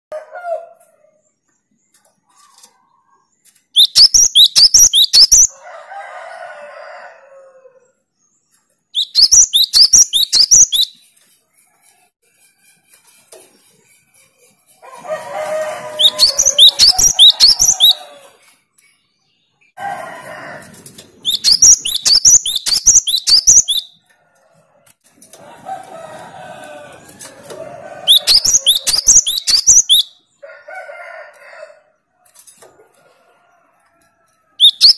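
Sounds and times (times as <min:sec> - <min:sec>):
bird rapid high song: 0:03.6 - 0:05.5, 0:08.3 - 0:11.3, 0:15.4 - 0:19.8, 0:21.2 - 0:24.0, 0:28.0 - 0:30.2, 0:34.6 - 0:34.9.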